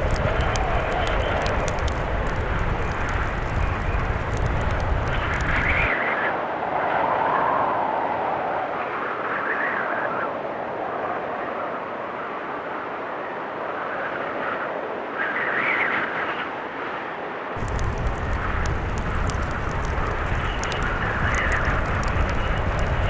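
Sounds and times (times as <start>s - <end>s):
low rumble: 0.0s - 5.9s, 17.6s - 23.0s
wood fire crackling: 0.0s - 5.9s, 17.6s - 23.0s
blizzard wind howling: 0.0s - 15.5s, 17.6s - 23.0s.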